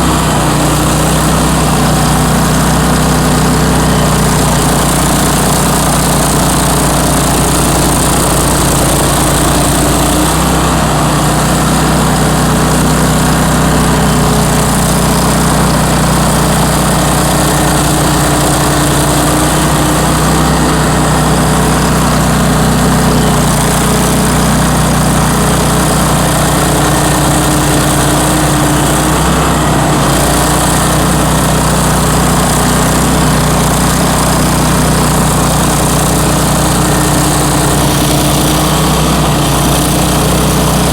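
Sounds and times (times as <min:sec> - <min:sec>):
stump grinder engine running: 0:00.0 - 0:40.9.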